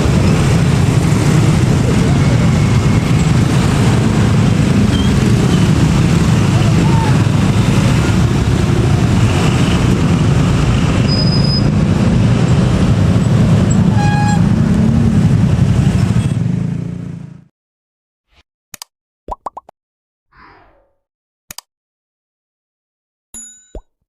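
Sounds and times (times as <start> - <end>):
locomotive engine working hard: 0.0 - 16.7
wheels rumbling on rail: 0.0 - 17.4.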